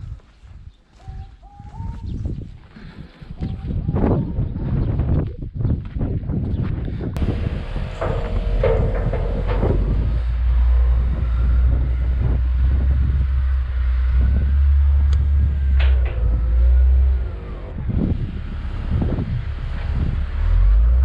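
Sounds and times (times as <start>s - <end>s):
knocks and rattles: 7.2s - 21.0s
vehicle engine low rumble: 7.2s - 21.0s.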